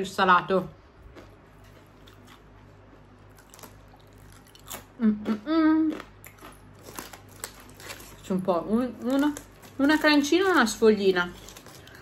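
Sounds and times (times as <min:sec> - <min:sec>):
cracker crunching: 0:01.0 - 0:12.0
person humming mmm: 0:05.0 - 0:06.1.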